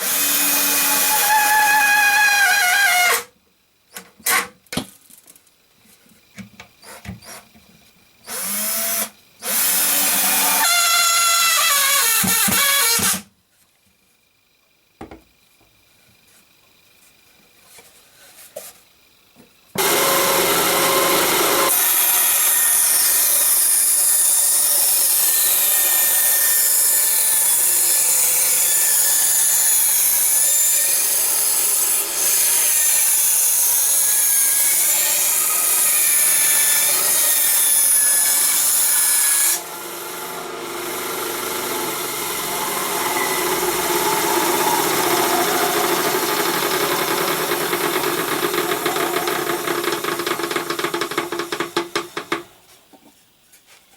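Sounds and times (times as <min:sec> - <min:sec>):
power tool cutting wood: 0:00.0 - 0:03.3, 0:08.3 - 0:13.3, 0:19.8 - 0:52.4.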